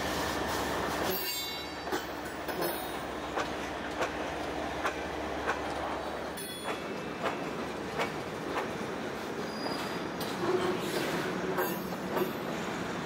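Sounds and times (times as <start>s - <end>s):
wheels clicking over rail joints: 1.0s - 8.8s.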